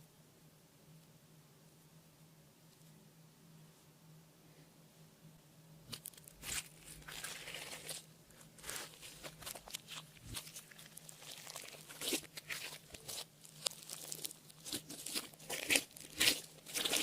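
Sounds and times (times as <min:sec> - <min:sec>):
slime squished by hand: 0:08.6 - 0:17.0.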